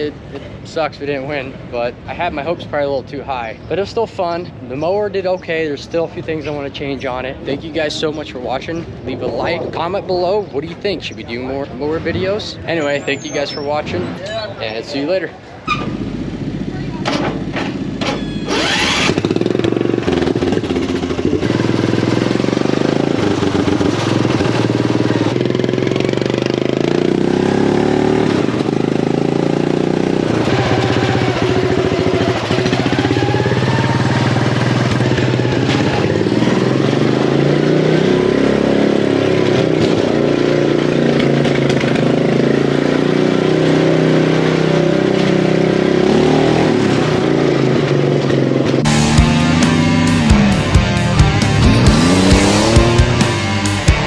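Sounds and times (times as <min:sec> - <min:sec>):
mower engine running loud: 0:17.7 - 0:39.2, 0:48.8 - 0:54.0.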